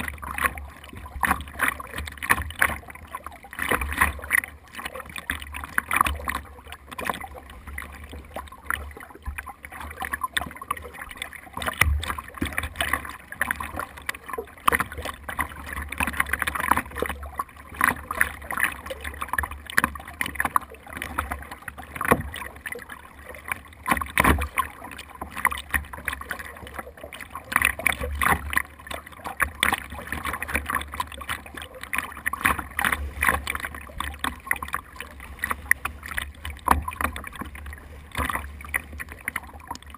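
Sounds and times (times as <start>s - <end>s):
water splashing against boat hull: 0.0s - 39.9s.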